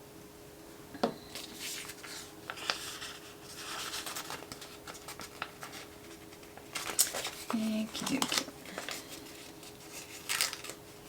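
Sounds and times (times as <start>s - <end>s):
paper handling ticks: 1.4s - 10.8s
scratching on paper: 1.6s - 10.4s.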